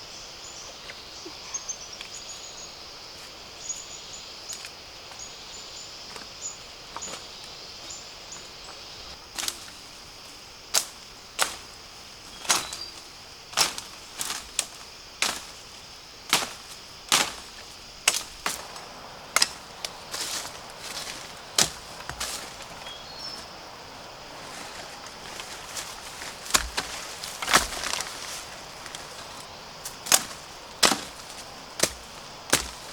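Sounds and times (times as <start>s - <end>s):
insect buzz: 0.0s - 32.9s
blade chopping bamboo: 16.3s - 18.8s, 26.2s - 29.1s, 29.8s - 32.9s.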